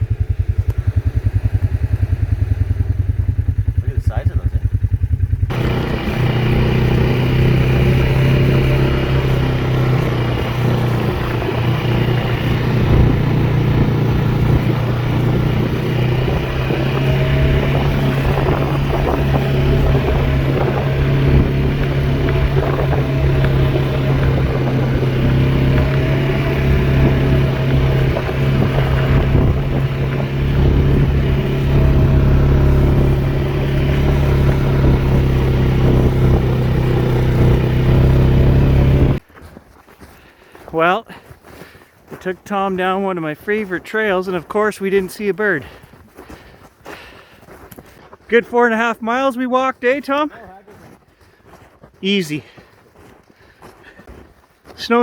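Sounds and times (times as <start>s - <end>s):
atv engine running: 0.0s - 39.4s, 40.3s - 51.2s.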